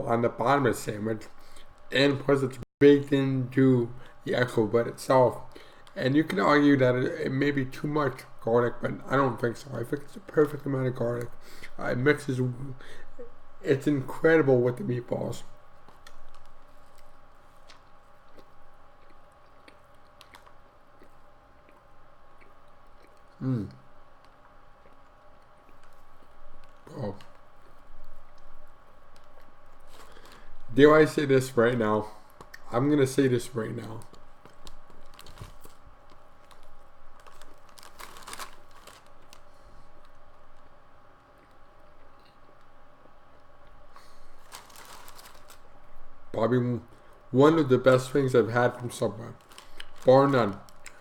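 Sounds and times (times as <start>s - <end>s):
person chewing food: 15.7s - 30.6s, 33.8s - 45.6s, 49.4s - 50.1s, 50.7s - 51.0s.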